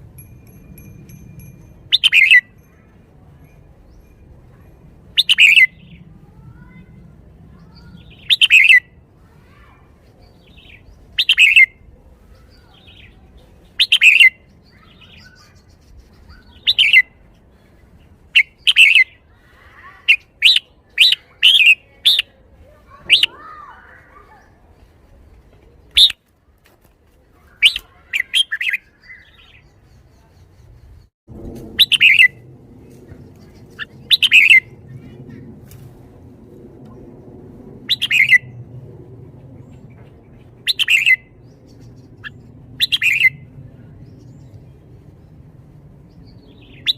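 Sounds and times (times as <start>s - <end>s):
bulbul singing: 0.0s - 6.1s, 7.6s - 9.0s, 10.2s - 11.8s, 12.4s - 17.2s, 31.7s - 35.4s, 37.9s - 38.7s, 39.5s - 44.7s.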